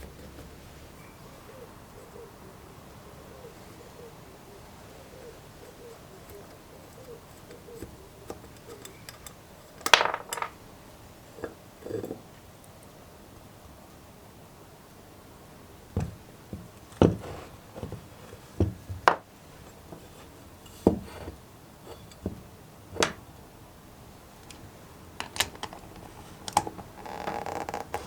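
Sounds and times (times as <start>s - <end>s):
tools knocking and clicking: 7.4s - 10.6s
metal parts rattling: 8.6s - 10.6s.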